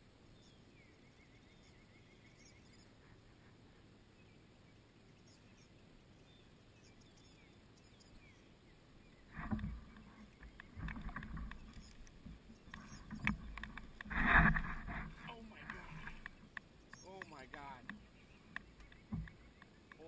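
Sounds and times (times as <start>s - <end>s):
knocks and bumps in kayak: 9.3s - 20.0s
water sloshing: 9.3s - 20.0s.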